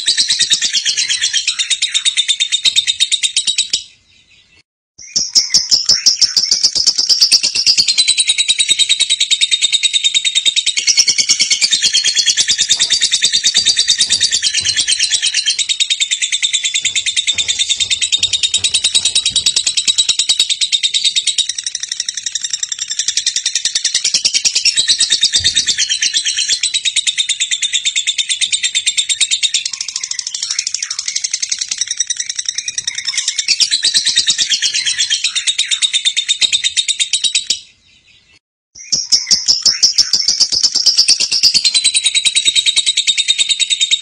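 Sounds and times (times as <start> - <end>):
lovebird chattering: 9.4 - 23.0.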